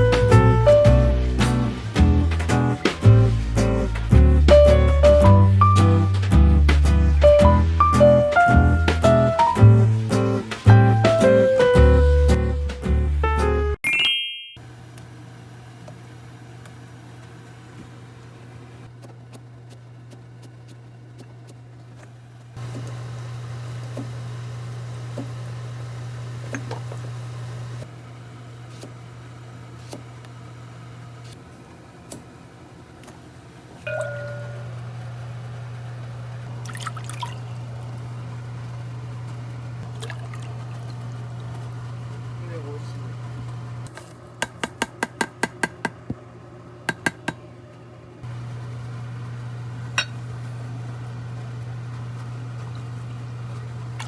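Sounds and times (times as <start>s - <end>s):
low mechanical hum: 14.6s - 54.0s
ringing clink of glass: 33.9s - 34.8s.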